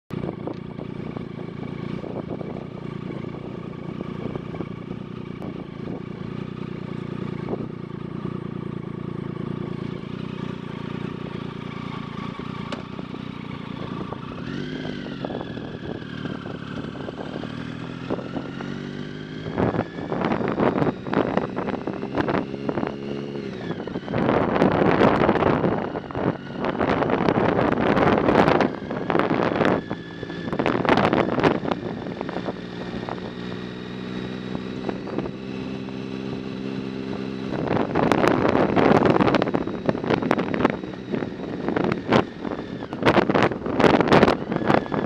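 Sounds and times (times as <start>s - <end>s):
motorcycle engine idling: 0.1s - 45.0s
motorcycle engine revving: 0.1s - 45.0s
wind hitting microphone: 13.7s - 45.0s.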